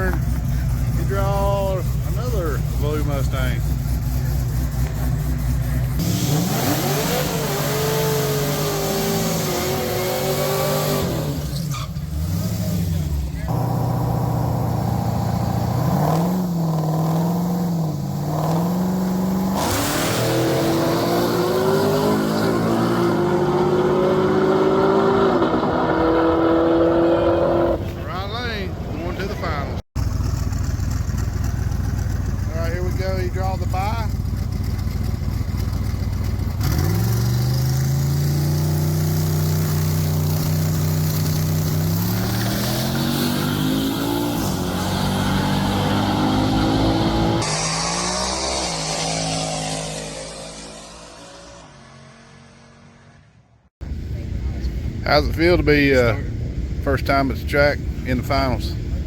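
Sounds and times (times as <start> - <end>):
drag racing car engines revving: 0.0 - 53.3, 53.9 - 59.0.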